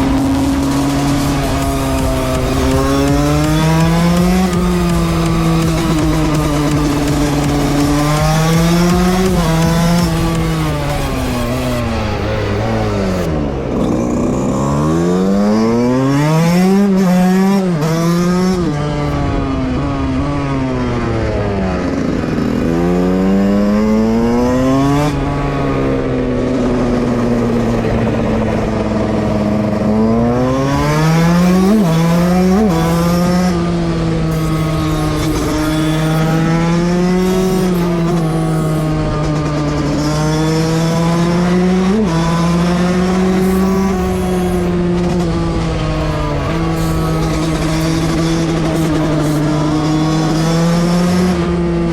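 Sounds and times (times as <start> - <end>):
two-stroke motorcycle engine revving: 0.0 - 51.9.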